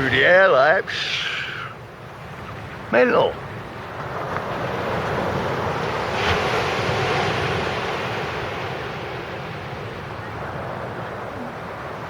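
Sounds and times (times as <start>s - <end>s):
surf breaking on beach: 0.0s - 12.0s.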